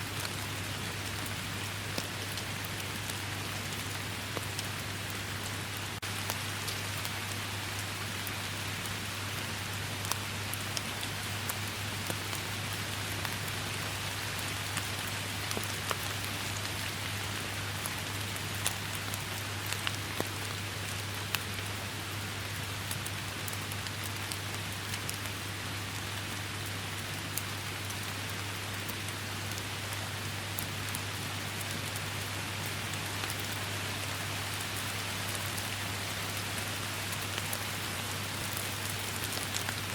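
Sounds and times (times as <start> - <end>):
steady rain falling: 0.0 - 39.9
raindrops ticking: 26.0 - 39.9.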